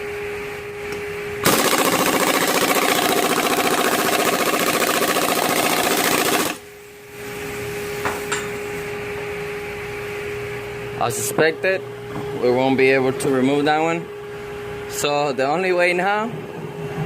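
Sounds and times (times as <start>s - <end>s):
impact wrench hammering: 1.4s - 6.6s.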